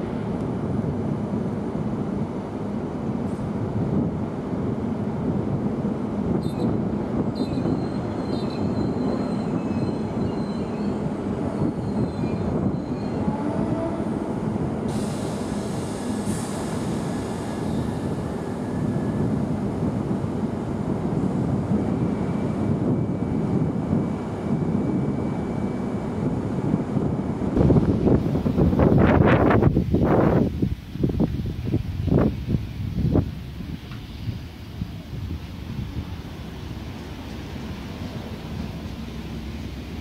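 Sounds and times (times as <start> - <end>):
train rumbling: 0.0 - 40.0
high wheel squeal: 7.4 - 11.0, 11.6 - 13.4
hiss: 14.9 - 19.2.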